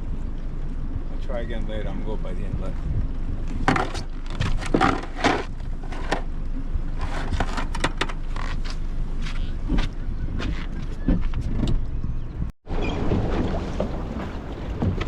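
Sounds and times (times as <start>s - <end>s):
boat motor rumble: 0.0s - 15.0s
water splashing against hull: 12.6s - 15.0s.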